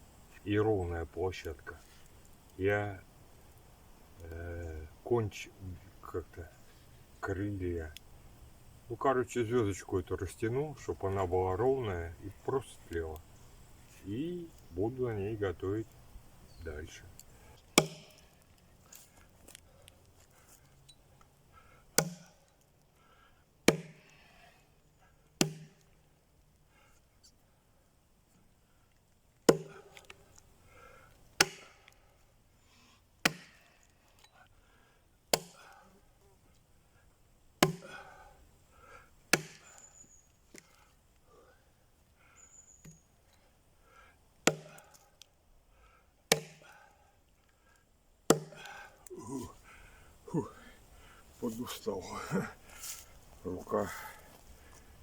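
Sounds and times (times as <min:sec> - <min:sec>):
axe chopping wood: 0:17.7 - 0:18.4, 0:22.0 - 0:22.4, 0:23.6 - 0:24.1, 0:25.4 - 0:25.8, 0:29.5 - 0:30.2, 0:31.4 - 0:31.8, 0:33.2 - 0:33.7, 0:35.3 - 0:35.8, 0:37.6 - 0:38.0, 0:39.3 - 0:39.7, 0:44.4 - 0:45.0, 0:46.3 - 0:46.8, 0:48.3 - 0:48.8.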